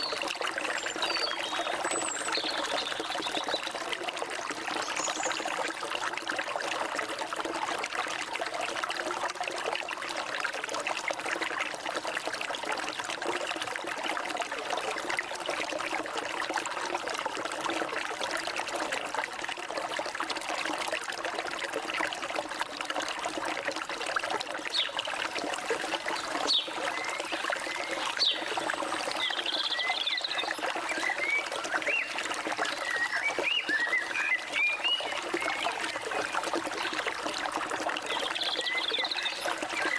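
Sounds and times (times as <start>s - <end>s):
stream water trickling: 0.0s - 39.9s
birds chirping: 26.2s - 32.1s.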